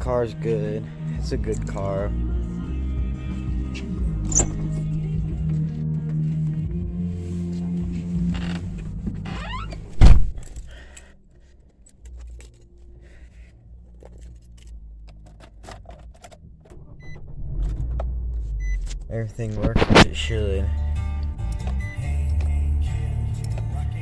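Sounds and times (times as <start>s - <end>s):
car trunk lid slamming shut: 9.9s - 10.6s.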